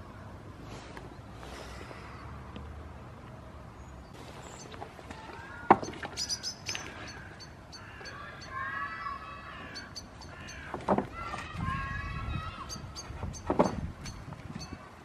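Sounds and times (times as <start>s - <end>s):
small birds chirping: 3.7s - 14.8s
faint drawn-out call: 4.5s - 13.1s.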